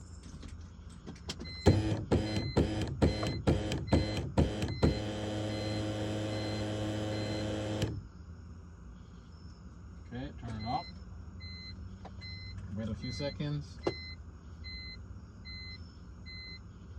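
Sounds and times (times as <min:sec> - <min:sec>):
car engine cranking: 0:01.5 - 0:08.0.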